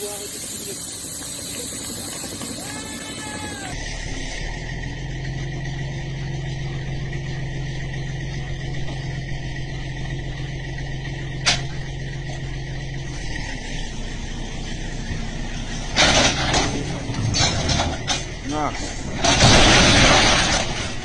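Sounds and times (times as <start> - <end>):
constant hiss: 0.0 - 3.8
engine drone: 0.0 - 21.0.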